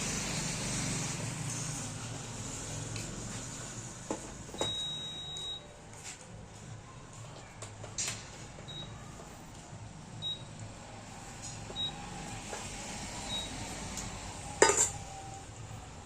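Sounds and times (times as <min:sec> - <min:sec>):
cooker buzzer beeping: 0:04.6 - 0:05.7, 0:11.7 - 0:12.1, 0:13.2 - 0:13.8.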